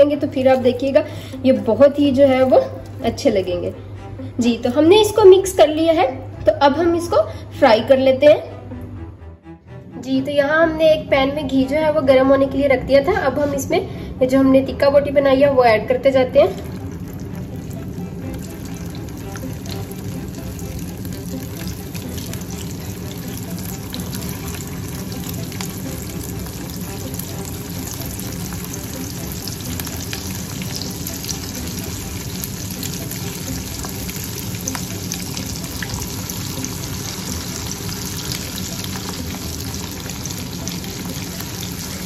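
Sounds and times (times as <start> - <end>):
meat sizzling in hot ghee: 16.6 - 42.0.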